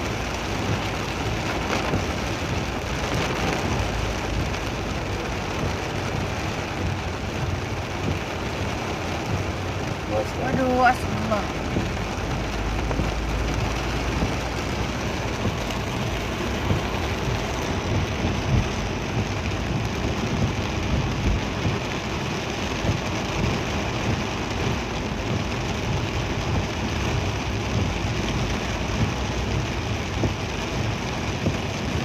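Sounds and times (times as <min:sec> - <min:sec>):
constant low rumble: 0:00.0 - 0:32.0
heavy rain on a vehicle: 0:00.0 - 0:32.0.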